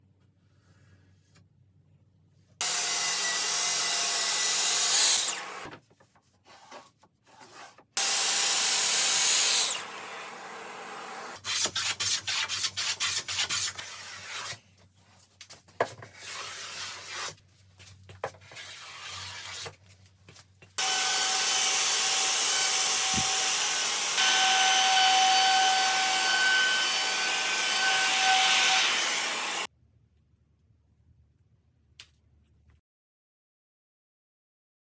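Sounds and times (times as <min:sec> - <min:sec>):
power tool cutting wood: 0:02.6 - 0:05.7, 0:08.0 - 0:11.4, 0:20.8 - 0:29.7.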